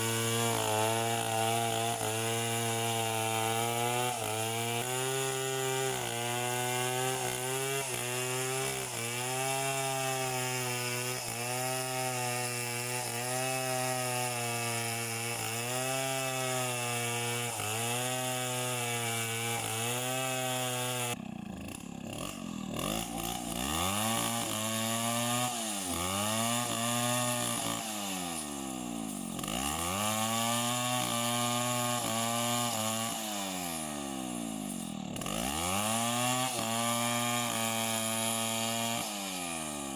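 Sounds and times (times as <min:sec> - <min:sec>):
two-stroke chainsaw running: 0:00.0 - 0:39.9.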